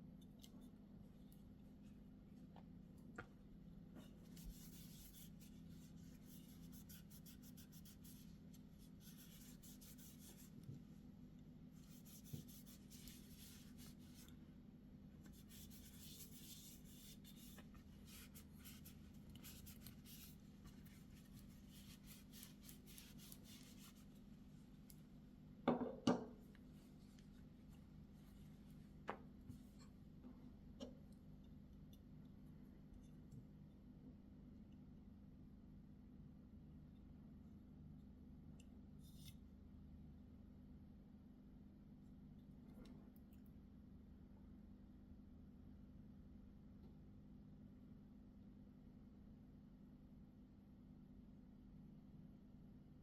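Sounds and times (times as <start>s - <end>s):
hands rubbing packaging: 15.3s - 24.2s.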